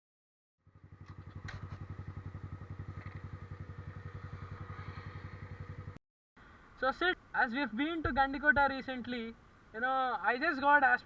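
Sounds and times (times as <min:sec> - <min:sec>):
motorcycle engine idling: 0:00.6 - 0:06.0.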